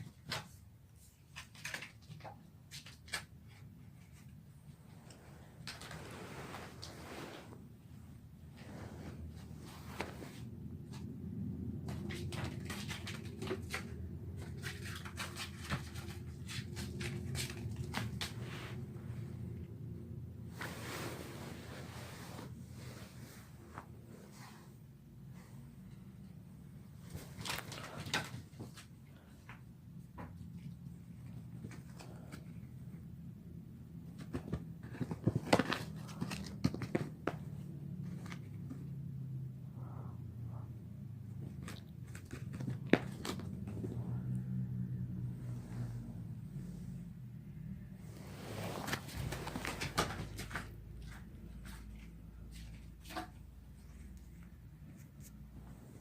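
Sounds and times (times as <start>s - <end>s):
paper ball crackling and tapping: 34.1s - 38.9s, 41.4s - 44.0s, 48.9s - 53.4s.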